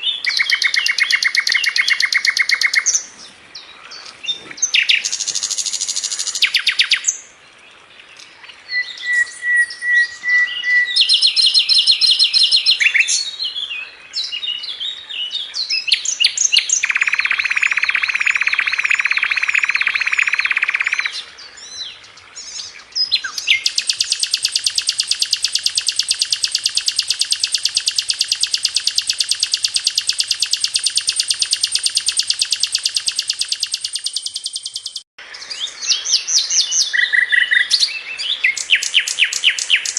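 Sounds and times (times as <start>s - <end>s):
bird singing fast song: 0.0s - 39.9s
bird long rapid trill: 0.2s - 3.0s, 16.7s - 21.2s, 23.5s - 35.1s.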